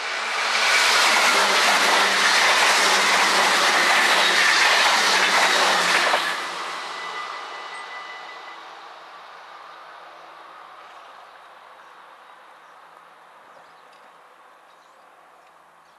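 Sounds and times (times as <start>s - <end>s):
electric train rail noise: 0.0s - 11.1s.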